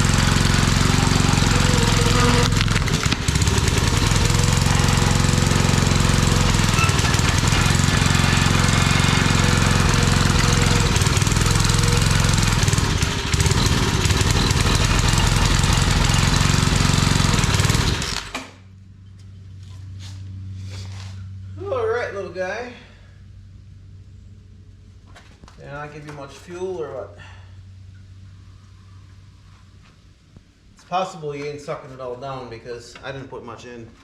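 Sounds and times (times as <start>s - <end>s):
small engine running: 0.0s - 18.6s.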